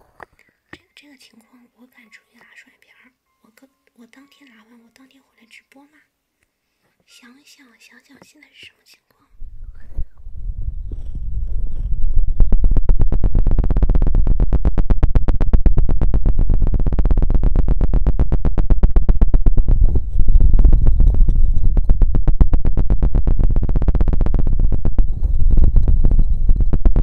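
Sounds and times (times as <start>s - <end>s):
feather scratching on a microphone: 9.6s - 14.0s, 19.5s - 22.1s.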